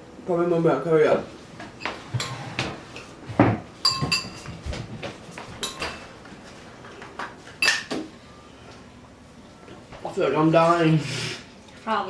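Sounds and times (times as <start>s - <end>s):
dishes and glass clinking: 3.8s - 4.6s, 7.6s - 8.0s.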